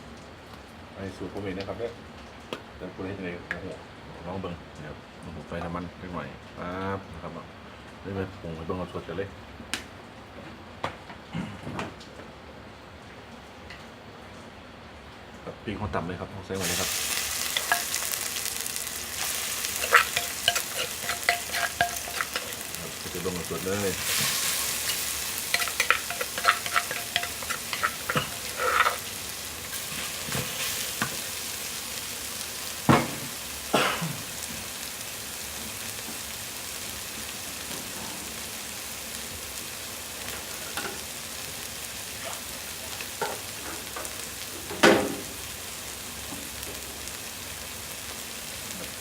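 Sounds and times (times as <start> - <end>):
curry paste sizzling in oil: 16.5 - 49.0
utensil scraping a pot: 16.6 - 31.2.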